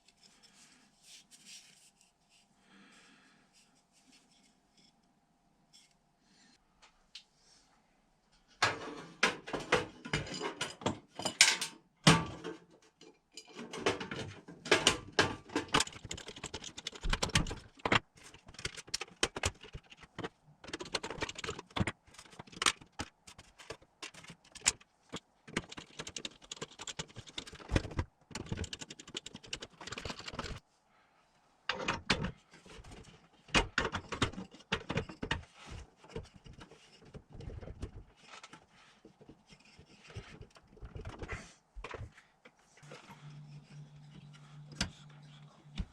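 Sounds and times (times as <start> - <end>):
small metal parts clinking and rattling: 9.6 - 11.8.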